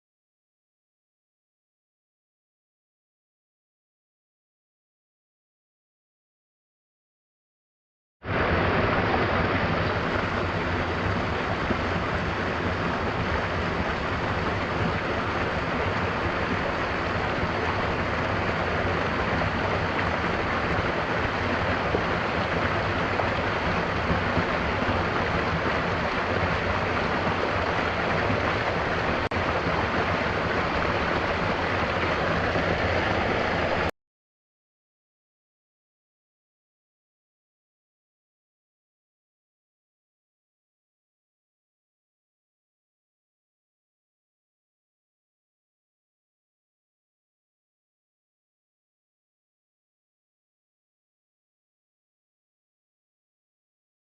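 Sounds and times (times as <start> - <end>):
waterfall roaring: 8.3 - 33.9.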